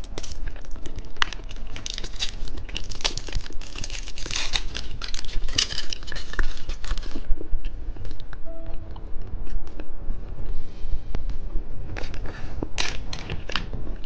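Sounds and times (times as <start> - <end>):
plastic wrapper crinkling: 0.0 - 7.3.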